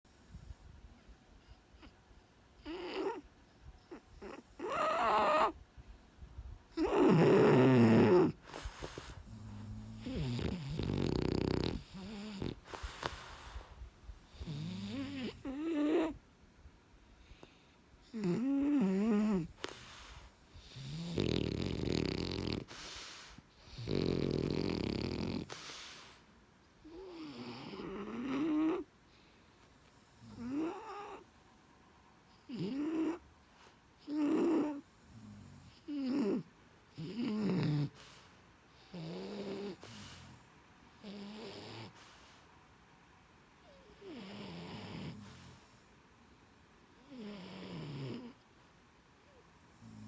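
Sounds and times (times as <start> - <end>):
dog snoring: 2.6 - 3.3, 3.9 - 5.6, 6.7 - 13.7, 14.3 - 16.2, 17.3 - 26.2, 26.8 - 28.9, 30.0 - 31.3, 32.4 - 33.3, 34.0 - 40.4, 41.0 - 42.4, 43.6 - 45.8, 47.0 - 48.4, 49.3 - 50.0
dog whimpering: 3.9 - 5.6, 6.8 - 8.4.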